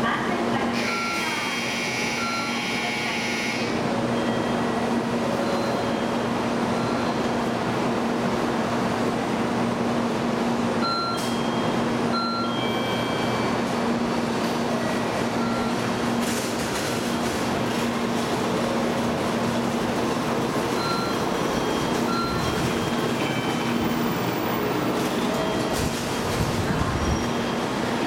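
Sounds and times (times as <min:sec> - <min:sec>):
train doors closing: 0:00.5 - 0:08.9, 0:10.1 - 0:28.0
short high beeps: 0:00.8 - 0:01.3, 0:02.0 - 0:03.6, 0:10.8 - 0:13.6.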